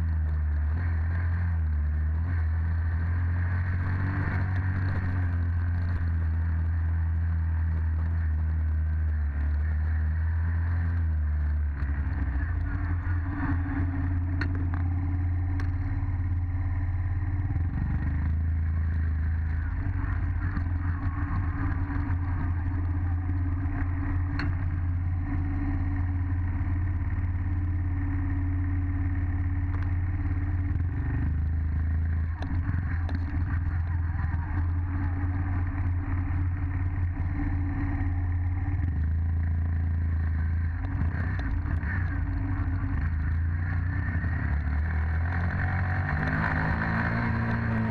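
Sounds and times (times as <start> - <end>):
dirt bike engine running: 0.0 - 47.9.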